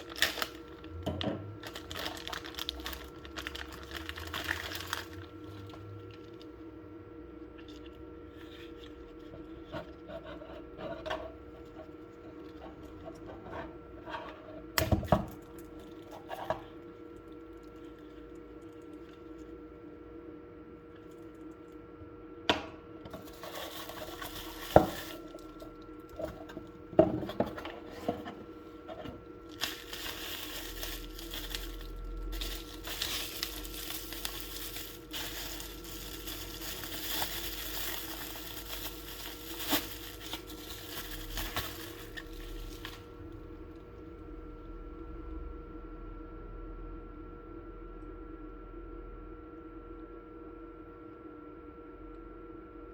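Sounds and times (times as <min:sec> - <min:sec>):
wrapping rustling and crinkling: 0:00.0 - 0:06.6, 0:23.1 - 0:43.2.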